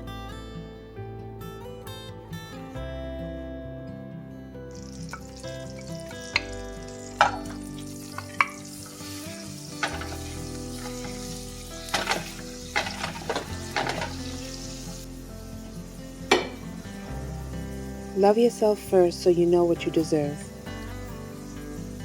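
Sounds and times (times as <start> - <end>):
food sizzling in a pan: 4.7 - 22.0
utensil knocking and scraping pan: 7.2 - 8.6, 9.8 - 11.3, 11.9 - 14.3, 16.3 - 16.7.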